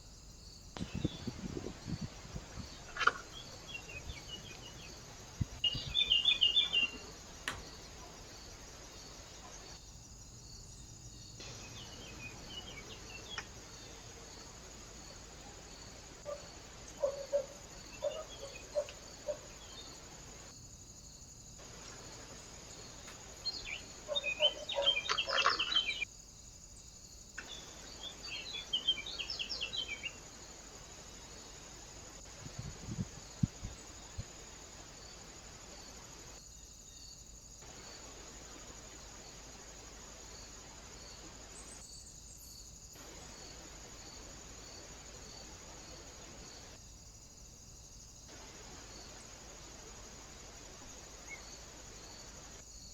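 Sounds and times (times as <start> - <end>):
outdoor background hiss: 0.0 - 52.9
small birds chirping: 0.8 - 9.8, 10.7 - 20.2, 21.6 - 26.1, 27.4 - 30.5.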